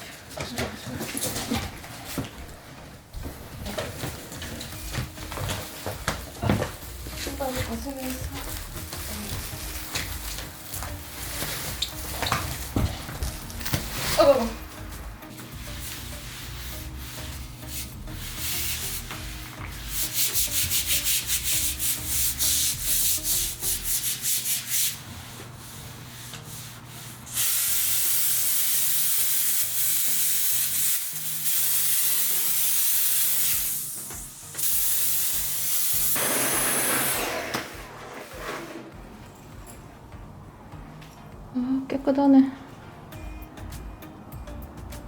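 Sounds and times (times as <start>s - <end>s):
surface scrubbed by hand: 36.2s - 39.0s.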